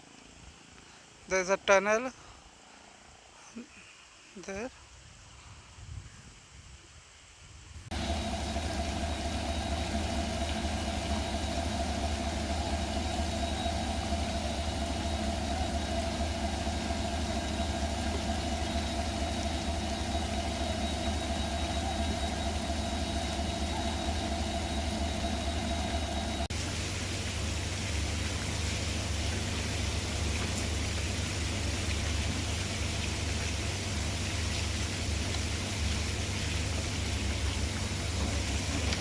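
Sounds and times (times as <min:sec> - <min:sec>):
steady engine hum: 0:07.9 - 0:39.0.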